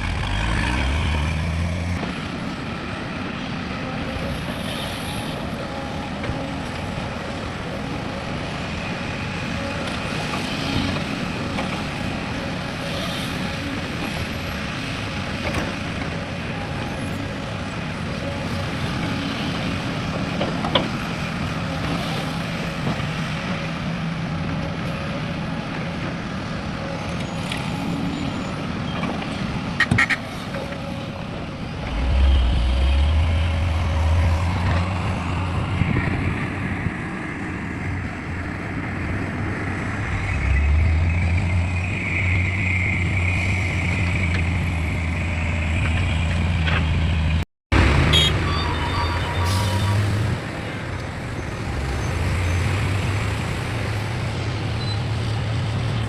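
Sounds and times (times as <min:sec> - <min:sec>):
diesel engine humming: 0:31.3 - 0:36.4.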